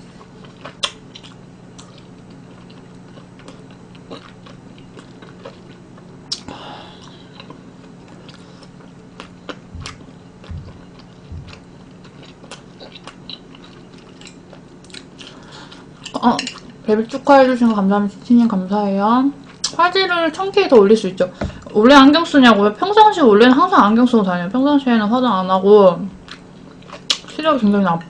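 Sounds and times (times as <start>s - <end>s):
steady low hum: 0.0s - 28.0s
person chewing food: 0.2s - 16.7s
low thumps: 9.7s - 11.8s, 21.4s - 21.7s.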